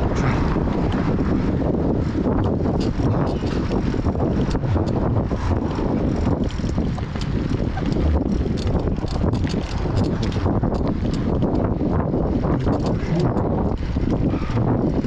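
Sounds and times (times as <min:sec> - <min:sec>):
wind buffeting microphone: 0:00.0 - 0:15.0
bicycle clicks and rattles: 0:00.7 - 0:15.0.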